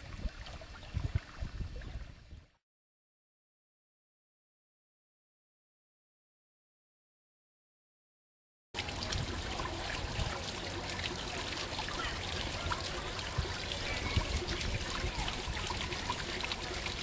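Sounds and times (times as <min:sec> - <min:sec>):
stream water trickling and splashing: 0:00.0 - 0:02.6, 0:08.8 - 0:17.0.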